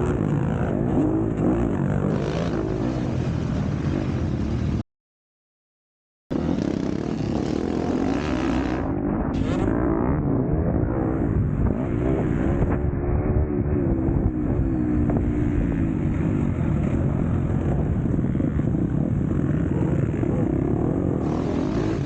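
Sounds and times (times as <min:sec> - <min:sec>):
motocross bike engine revving: 0:06.3 - 0:22.0.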